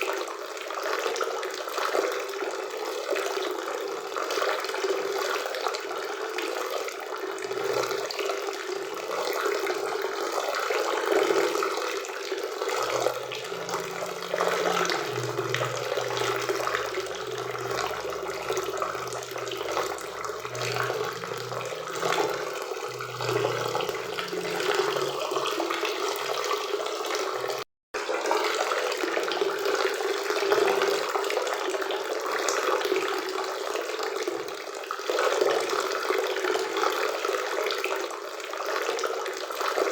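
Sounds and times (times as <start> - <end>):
faint low hum: 12.7 - 27.6.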